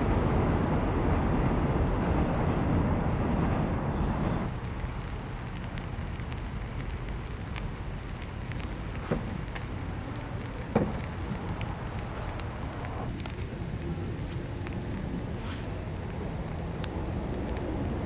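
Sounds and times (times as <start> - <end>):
logs burning and crackling: 0.0 - 18.0
low fire rumble: 0.0 - 18.0
sharp pops of burning wood: 4.4 - 13.4.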